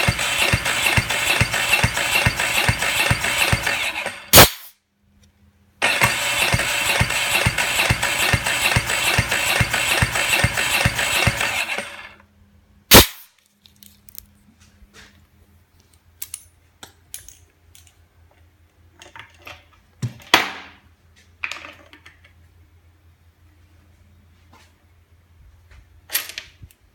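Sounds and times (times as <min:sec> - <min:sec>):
engine cranking on starter motor: 0:00.0 - 0:04.7, 0:05.8 - 0:12.2
short sharp burst: 0:00.0 - 0:04.8, 0:12.9 - 0:13.3
loud sharp click: 0:04.3 - 0:04.8, 0:12.9 - 0:13.3.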